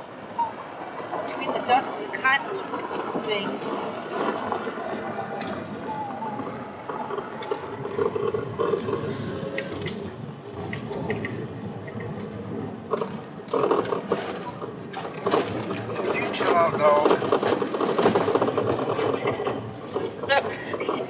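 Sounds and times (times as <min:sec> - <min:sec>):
car road and engine rumble: 0:00.0 - 0:21.0
small clicks and rattles: 0:06.7 - 0:21.0.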